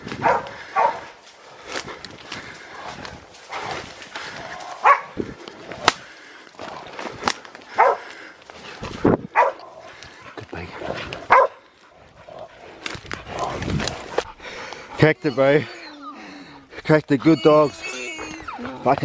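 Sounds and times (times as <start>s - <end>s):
dogs barking: 0.2s - 1.2s, 4.5s - 5.2s, 7.7s - 8.2s, 9.3s - 10.1s, 11.2s - 12.6s
sharp cracks: 5.8s - 8.0s.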